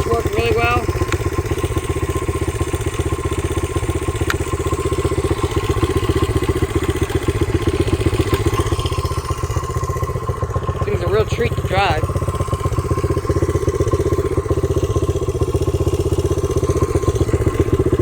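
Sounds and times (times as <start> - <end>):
motorcycle engine idling: 0.0 - 18.0
sharp tick: 1.0 - 1.3, 4.2 - 4.5.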